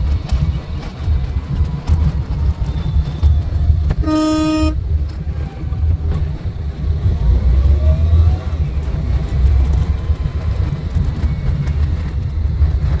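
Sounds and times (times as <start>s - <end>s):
van driving low rumble: 0.0s - 13.0s
vehicle horn beep: 4.0s - 4.8s.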